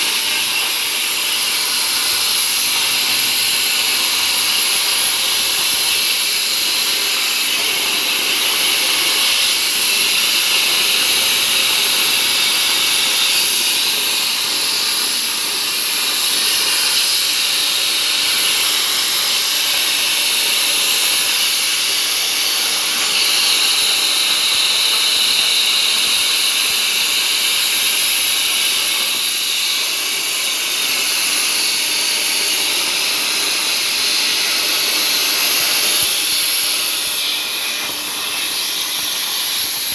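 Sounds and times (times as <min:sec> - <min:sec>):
plasma torch hissing: 0:00.0 - 0:39.9.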